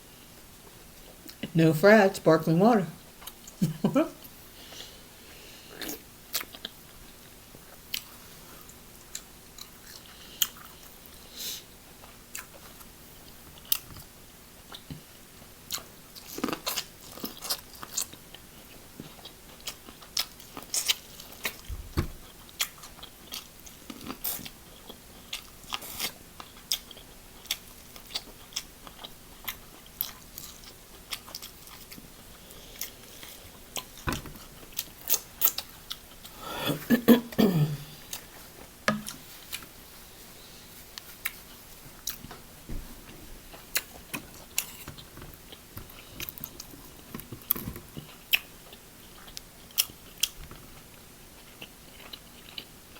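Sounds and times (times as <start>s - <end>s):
chewing and mouth sounds: 5.8s - 7.0s, 7.6s - 11.2s, 15.7s - 36.3s, 43.5s - 52.9s.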